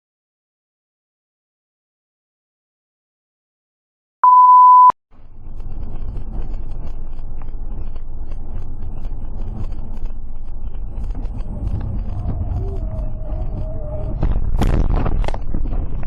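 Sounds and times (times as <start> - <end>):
car engine and road noise: 4.2 - 16.0.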